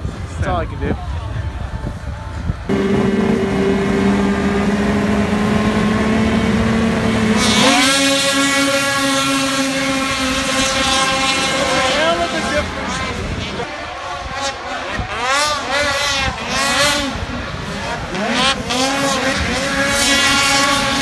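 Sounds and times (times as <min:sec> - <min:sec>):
higher-pitched engine revving up: 0:02.7 - 0:13.6
snowmobile engines revving: 0:02.7 - 0:21.0.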